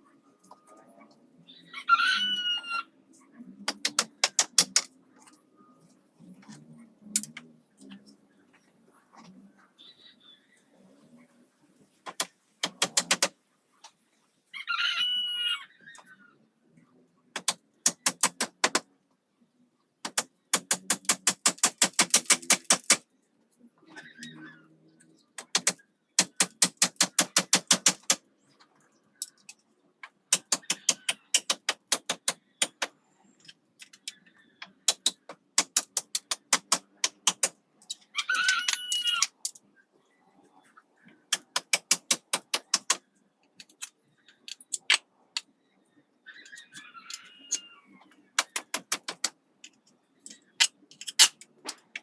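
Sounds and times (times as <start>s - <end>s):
rooster crowing: 1.8s - 2.9s, 14.6s - 15.7s, 38.2s - 39.3s, 46.5s - 47.9s
rapid sharp knocks: 3.7s - 4.9s, 12.1s - 13.3s, 17.4s - 18.8s, 20.0s - 23.0s, 25.4s - 28.2s, 30.4s - 32.9s, 34.9s - 37.5s, 48.4s - 49.3s.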